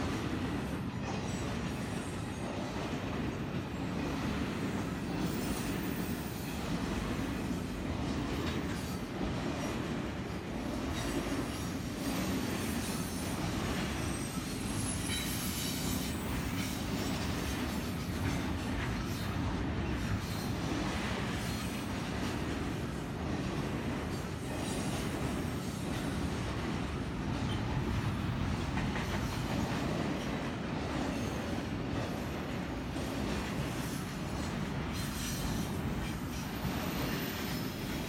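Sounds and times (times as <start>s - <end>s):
steel wheels rumbling on rail: 0.0s - 38.0s.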